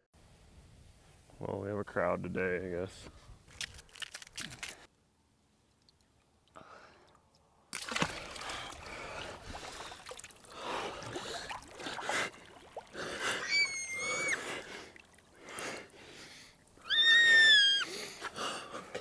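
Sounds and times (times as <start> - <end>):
water splashing and sloshing: 7.7 - 16.9.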